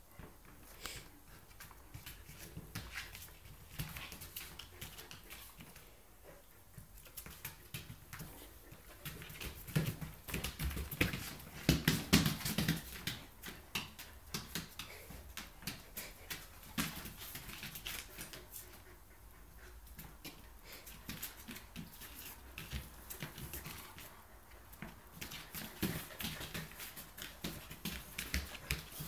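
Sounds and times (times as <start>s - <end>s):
dogs scuffling: 0.2s - 29.0s
claws clicking on hard floor: 6.8s - 18.8s, 19.9s - 29.0s.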